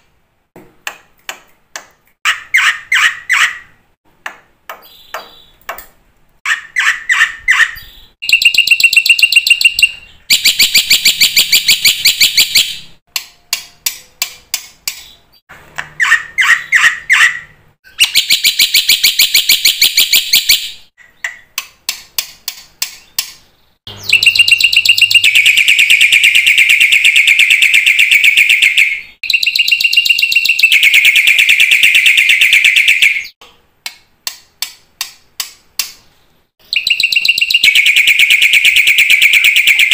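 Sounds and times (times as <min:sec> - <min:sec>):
bird singing with rattling trills: 0:06.5 - 0:12.8, 0:22.8 - 0:33.4, 0:36.6 - 0:39.9.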